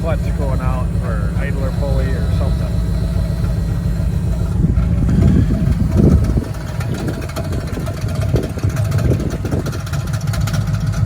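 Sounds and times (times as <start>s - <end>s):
rattling and knocking under hood: 0.0s - 11.0s
truck engine running: 0.0s - 11.0s.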